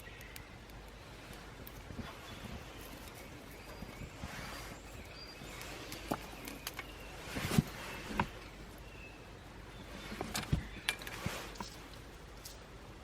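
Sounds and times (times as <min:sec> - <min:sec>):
faint bird chirps: 0:00.0 - 0:01.4, 0:02.0 - 0:12.0
wood fire crackling: 0:00.0 - 0:13.0.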